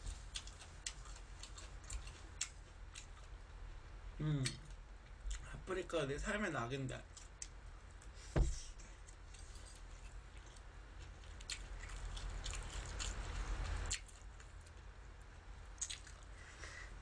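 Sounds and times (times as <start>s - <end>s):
chewing food: 0.0s - 3.4s, 9.0s - 14.9s, 15.8s - 16.4s
dull thump: 8.3s - 8.7s.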